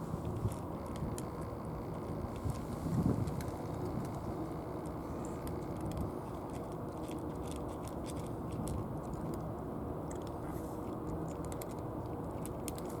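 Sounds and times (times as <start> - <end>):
cat crunching dry food: 0.0 - 13.0
low outdoor rumble: 0.0 - 13.0.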